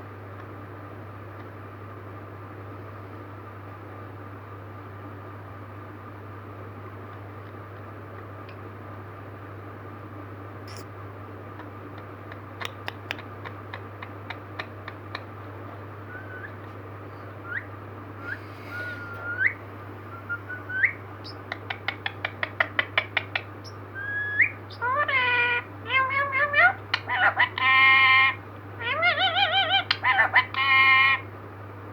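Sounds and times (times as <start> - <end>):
parrot clicks: 11.9 - 15.3
parrot whistles and calls: 16.1 - 31.2.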